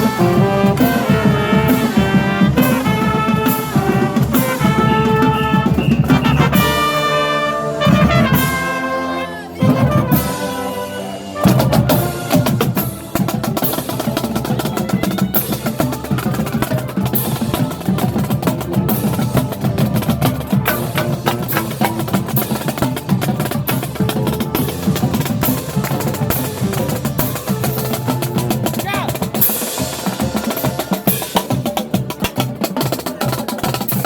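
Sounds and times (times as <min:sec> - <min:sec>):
marching band playing: 0:00.0 - 0:34.0
rapid drum strokes: 0:11.4 - 0:34.0.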